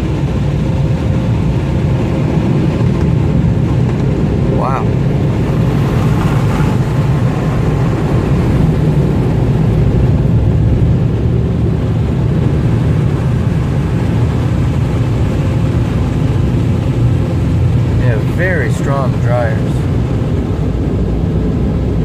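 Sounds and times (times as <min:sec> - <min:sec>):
air dryers blowing: 0:05.2 - 0:09.0.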